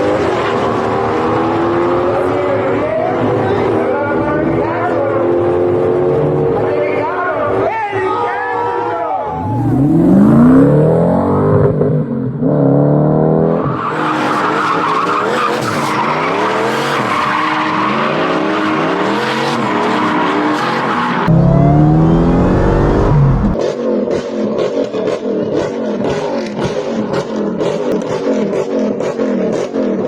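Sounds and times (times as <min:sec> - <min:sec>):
car engine revving: 0:09.2 - 0:13.5, 0:17.9 - 0:30.0.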